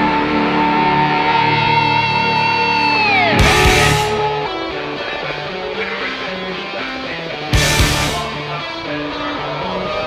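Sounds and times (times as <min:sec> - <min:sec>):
race car engine passing: 0:00.0 - 0:05.8
electric guitar rock song: 0:00.0 - 0:10.0
loud noise burst: 0:03.2 - 0:04.6, 0:07.6 - 0:08.4.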